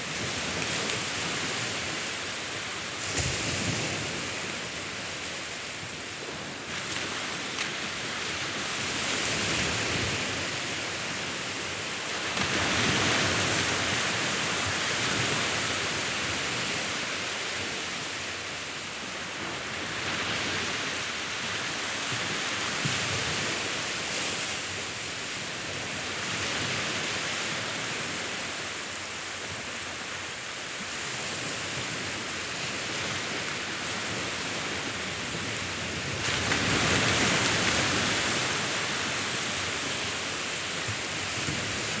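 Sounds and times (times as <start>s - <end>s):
sea waves washing in: 0.0s - 42.0s.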